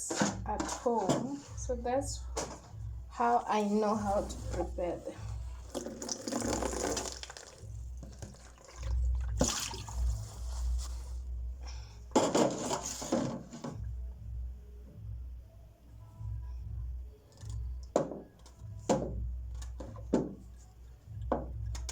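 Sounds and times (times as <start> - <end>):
water splashing and pouring: 5.7 - 10.7.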